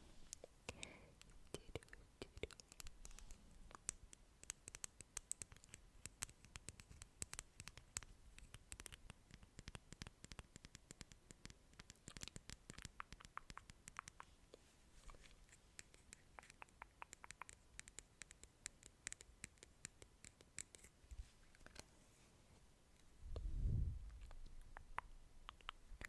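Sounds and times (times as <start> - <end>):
sharp little clicks and crackles: 0.3 - 14.3, 15.1 - 21.9.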